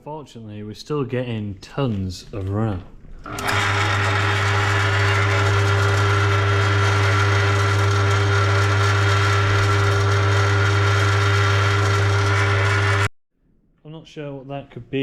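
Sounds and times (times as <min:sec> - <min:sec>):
drill press motor hum: 0:03.2 - 0:13.1.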